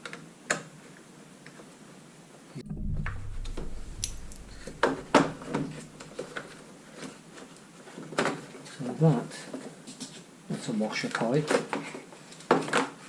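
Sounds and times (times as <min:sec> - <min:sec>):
low rumble: 0:02.6 - 0:06.6.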